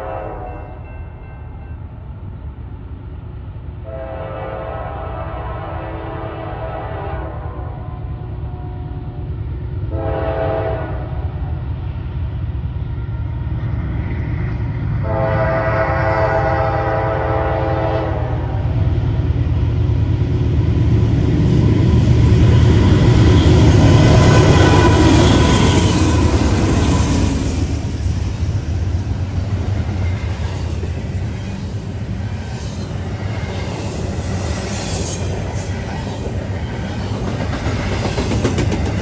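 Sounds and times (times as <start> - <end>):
locomotive air horn: 0.0 - 0.7, 3.8 - 9.0, 9.9 - 11.4, 15.0 - 18.8
freight train running past: 0.0 - 39.0.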